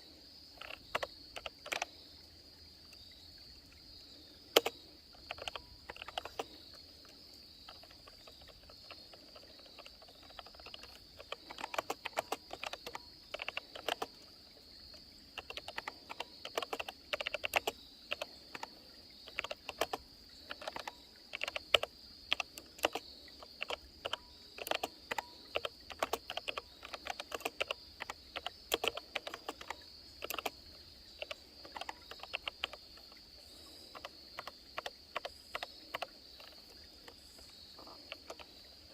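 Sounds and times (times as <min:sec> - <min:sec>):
insects buzzing: 0:00.0 - 0:38.9
keyboard key clicks: 0:00.6 - 0:01.9, 0:04.5 - 0:06.5, 0:07.7 - 0:14.2, 0:15.4 - 0:18.7, 0:19.3 - 0:30.6, 0:33.9 - 0:36.6.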